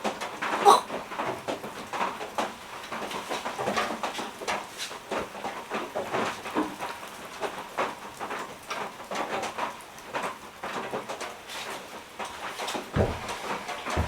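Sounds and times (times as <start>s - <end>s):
rain falling: 0.0s - 14.0s
short knocks or crunches: 13.0s - 14.0s.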